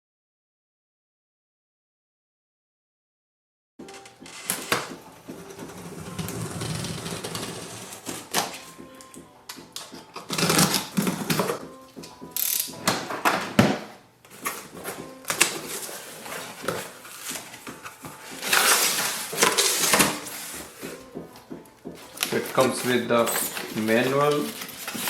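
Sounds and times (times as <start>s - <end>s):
cardboard scraping: 4.1s - 8.7s, 10.1s - 11.6s, 12.8s - 21.0s, 22.0s - 25.0s
tape or cardboard tearing: 10.2s - 11.6s, 18.3s - 20.6s
packaging rustling: 12.5s - 21.0s, 22.0s - 25.0s.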